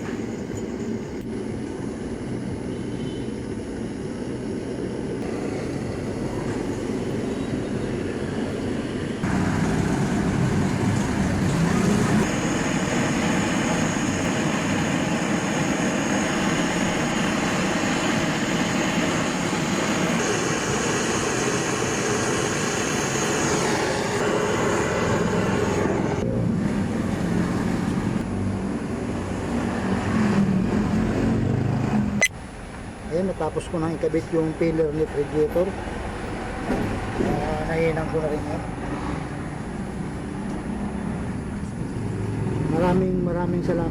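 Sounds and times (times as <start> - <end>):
gas torch hissing: 0.0 - 26.2.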